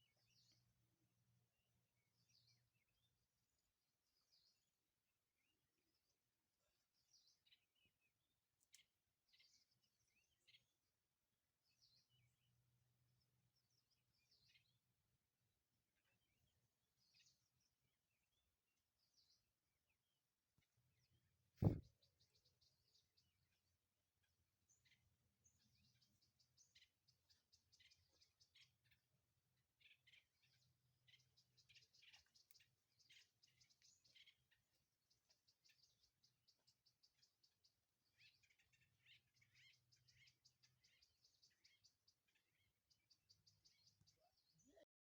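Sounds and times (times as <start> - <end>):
small birds chirping: 0.0 - 0.9, 1.7 - 11.0, 11.6 - 44.9
sharp thump: 21.6 - 21.9.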